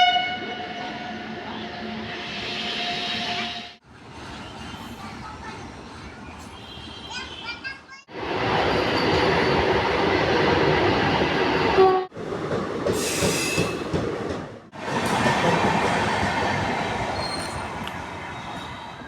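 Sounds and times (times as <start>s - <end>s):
train wheels rumbling on rails: 8.1s - 19.0s
high wheel squeal: 17.1s - 19.0s.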